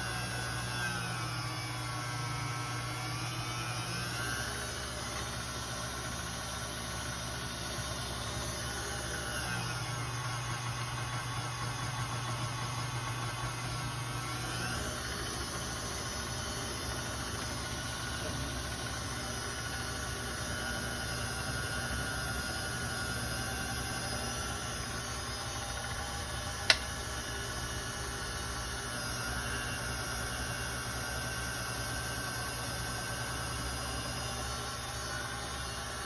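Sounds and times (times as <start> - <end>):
machine hum with faint whine: 0.0 - 36.0
sharp click: 26.6 - 27.0.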